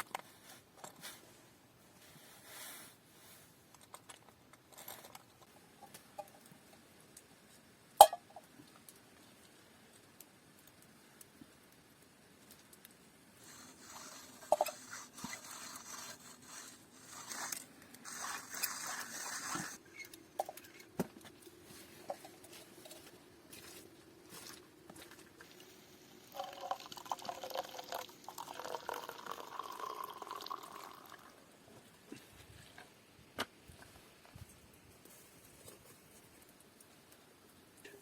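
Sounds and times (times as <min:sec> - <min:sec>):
liquid being poured: 0:25.4 - 0:31.3.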